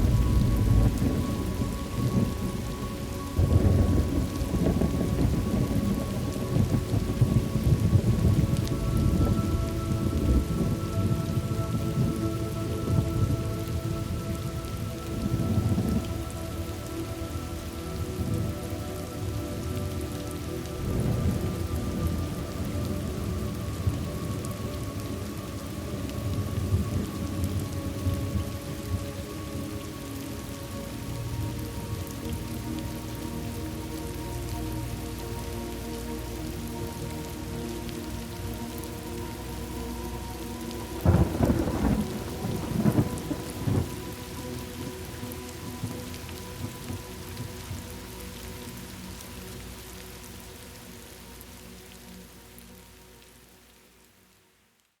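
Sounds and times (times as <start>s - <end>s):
thunder rumbling: 0.0s - 16.8s, 20.2s - 29.4s, 40.8s - 47.8s
steady rain: 0.0s - 55.0s.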